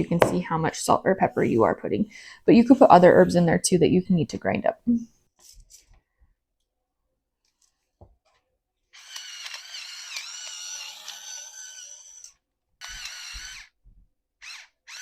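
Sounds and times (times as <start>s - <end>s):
electric grinder motor whine: 9.0s - 13.7s.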